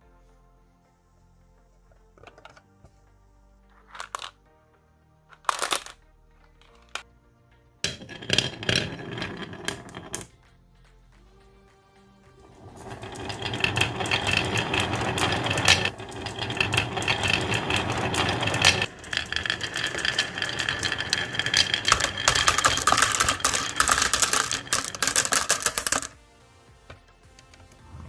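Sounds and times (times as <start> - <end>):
marbles clattering down plastic track: 3.9 - 4.4, 5.4 - 6.0, 7.9 - 10.4, 12.3 - 26.2.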